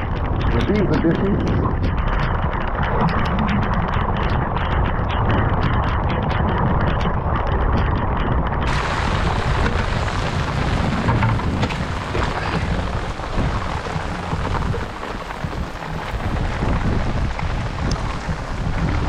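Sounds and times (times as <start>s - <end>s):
steady rain: 0.0s - 7.8s, 8.6s - 19.0s
wind rumble on microphone: 0.0s - 19.0s.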